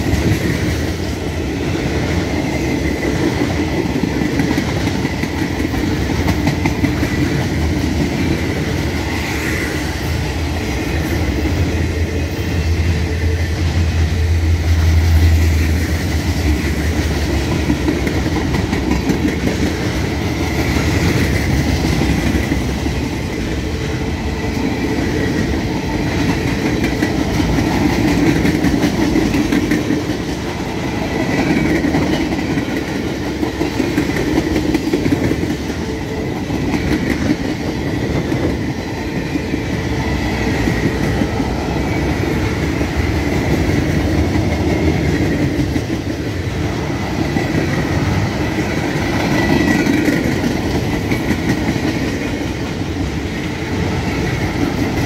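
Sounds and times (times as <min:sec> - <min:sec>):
steel wheels rumbling on rails: 0:00.0 - 0:55.0
wheels clacking over rail joints: 0:14.9 - 0:53.0.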